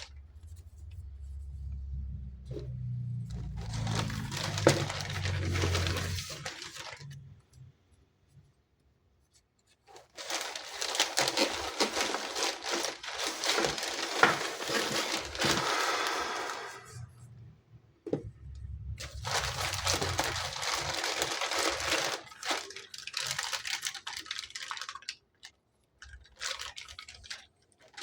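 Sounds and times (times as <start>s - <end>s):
packaging crinkling and tearing: 3.3s - 7.2s, 9.9s - 17.0s, 19.0s - 28.0s.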